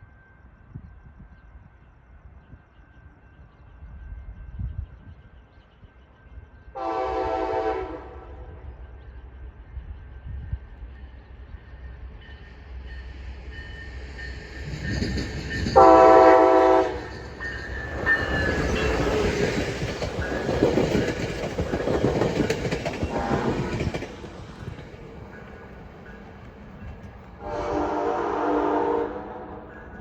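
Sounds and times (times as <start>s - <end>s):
train rumbling and clattering past: 0.0s - 30.0s
train horn blast: 6.8s - 8.6s, 15.8s - 17.1s, 27.4s - 29.7s.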